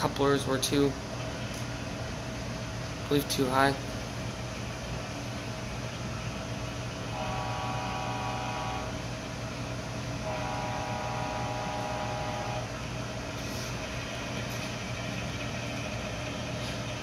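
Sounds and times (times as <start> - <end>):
diesel engine hum: 6.4 - 17.0
locomotive horn blasts: 7.1 - 9.0, 10.2 - 12.7.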